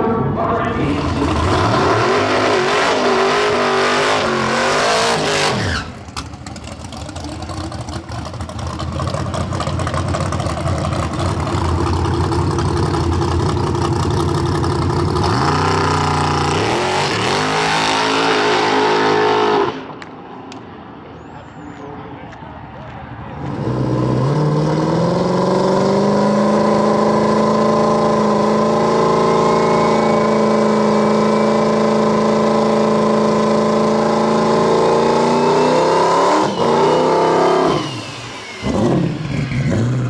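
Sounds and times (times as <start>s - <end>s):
drag car engines revving: 0.0s - 20.6s, 23.2s - 40.0s.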